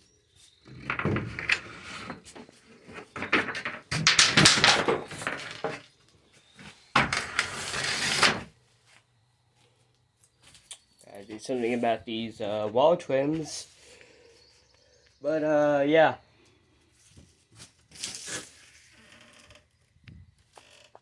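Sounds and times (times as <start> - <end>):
objects being handled: 0.5 - 6.0, 6.6 - 8.5.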